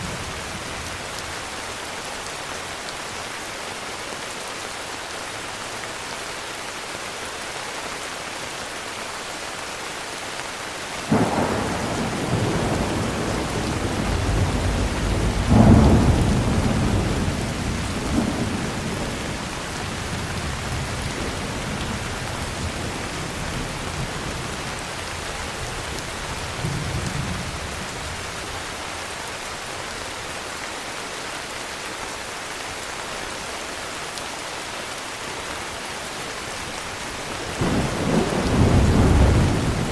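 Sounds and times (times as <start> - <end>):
heavy rain: 0.0 - 39.9
thunder crack and rumble: 11.1 - 28.1, 37.4 - 39.9.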